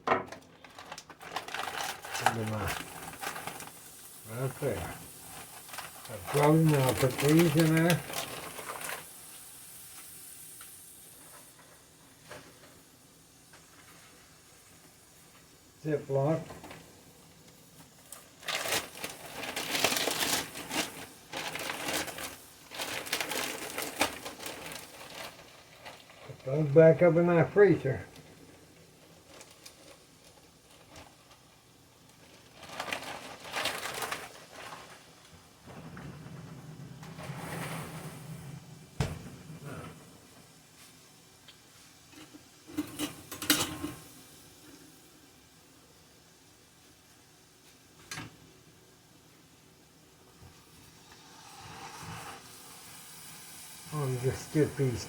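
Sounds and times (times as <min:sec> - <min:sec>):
plastic bags rustling and clattering: 0:00.0 - 0:09.3, 0:17.8 - 0:41.0, 0:53.9 - 0:55.0
vegetables sizzling in butter: 0:01.4 - 0:47.6, 0:50.6 - 0:55.0.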